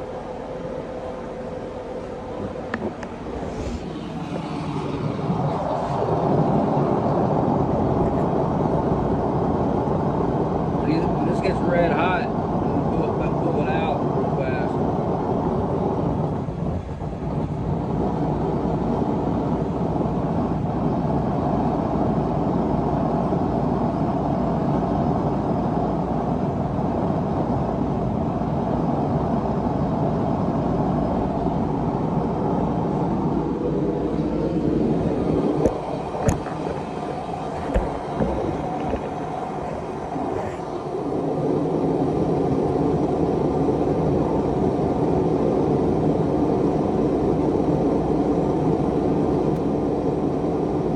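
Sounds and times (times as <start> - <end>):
gas forge burner rushing: 28.3 - 45.0.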